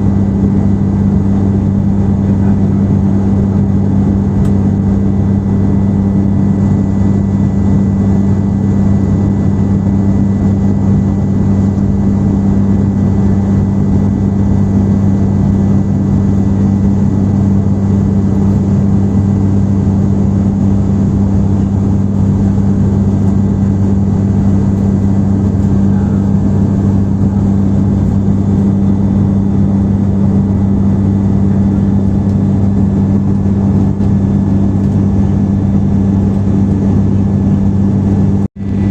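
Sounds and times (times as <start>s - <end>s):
high whine: 0.0s - 38.9s
jet engines droning: 0.0s - 38.9s
rush of air: 38.6s - 38.9s.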